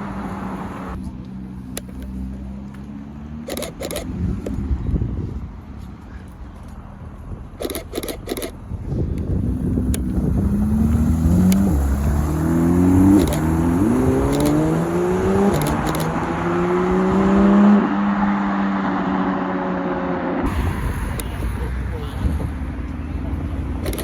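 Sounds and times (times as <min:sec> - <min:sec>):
car engine accelerating hard: 0:09.3 - 0:24.0.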